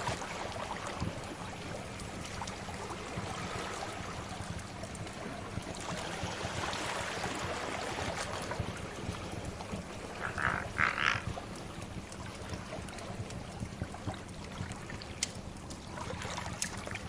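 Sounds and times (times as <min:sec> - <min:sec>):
sea waves washing: 0:00.0 - 0:13.4
wood fire crackling: 0:11.4 - 0:17.0.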